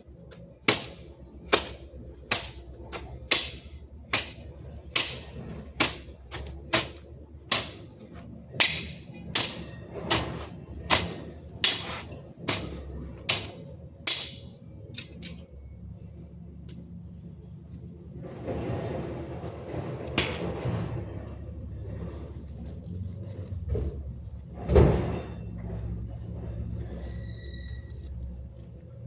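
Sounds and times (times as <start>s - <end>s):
hand tool chopping blows: 0.7s - 4.4s, 5.0s - 7.9s, 8.6s - 14.5s.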